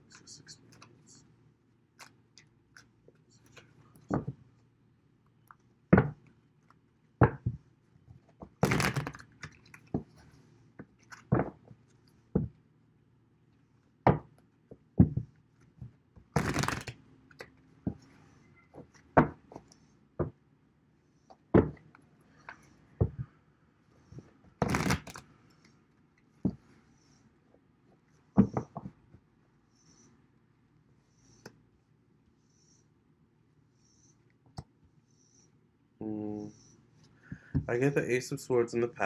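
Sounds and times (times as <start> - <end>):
cards rustling: 16.4 - 17.0, 24.6 - 25.2
cards knocking on table: 24.6 - 25.2.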